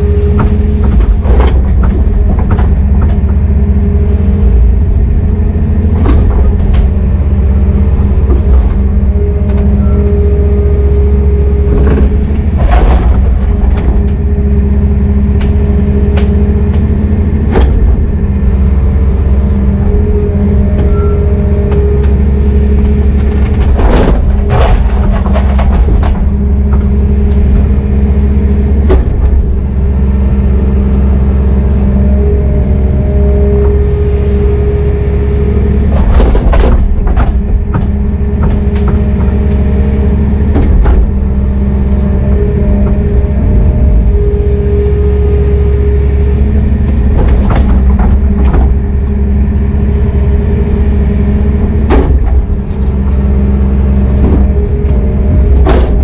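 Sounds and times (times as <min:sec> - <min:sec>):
metal clanks and knocks: 0:00.0 - 0:05.0, 0:11.4 - 0:30.8, 0:35.4 - 0:43.0, 0:46.0 - 0:56.0
excavator diesel engine droning: 0:00.0 - 0:56.0.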